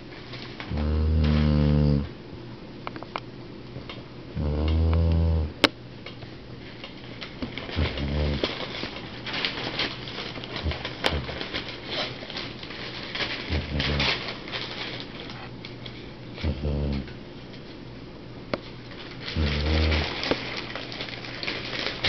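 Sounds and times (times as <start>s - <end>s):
dog snoring: 0.7s - 2.1s, 4.4s - 5.6s, 7.7s - 8.6s, 10.6s - 11.5s, 13.5s - 14.2s, 16.4s - 17.2s, 19.3s - 20.3s.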